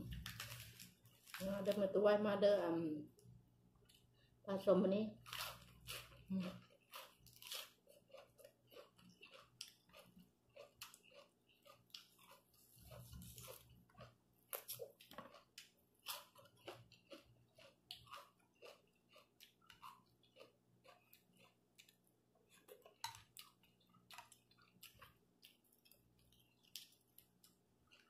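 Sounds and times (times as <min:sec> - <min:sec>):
person chewing with wet mouth clicks: 0:06.5 - 0:28.0.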